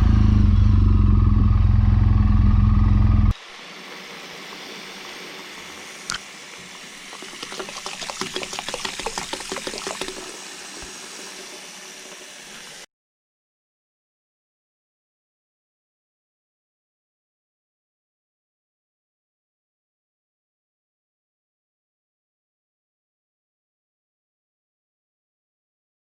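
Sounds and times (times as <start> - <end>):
motorcycle engine running: 0.0 - 3.3
steady hiss: 3.4 - 12.9.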